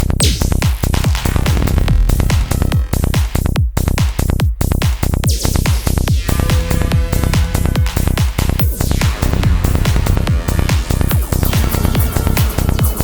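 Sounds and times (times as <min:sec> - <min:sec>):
psytrance music: 0:00.2 - 0:03.6, 0:05.3 - 0:13.0
sweeping synth effect: 0:06.2 - 0:13.0.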